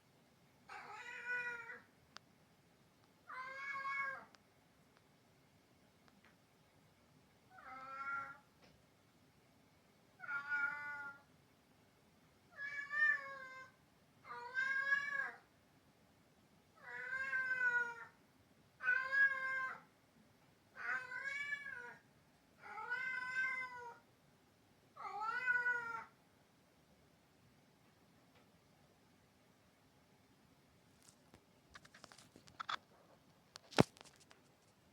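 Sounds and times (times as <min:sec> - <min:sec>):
cat yowling: 0:00.7 - 0:01.8, 0:03.3 - 0:04.3, 0:07.5 - 0:08.4, 0:10.2 - 0:11.2, 0:12.6 - 0:13.7, 0:14.3 - 0:15.4, 0:16.8 - 0:18.2, 0:18.8 - 0:19.8, 0:20.8 - 0:22.0, 0:22.6 - 0:24.0, 0:25.0 - 0:26.1.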